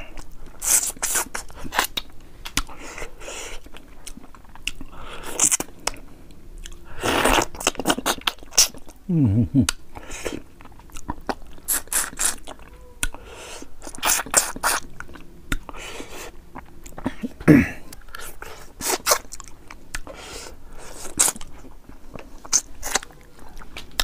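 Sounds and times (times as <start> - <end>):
wet chewing smacks and bites: 0.2 - 2.8, 3.6 - 6.0, 13.8 - 17.3.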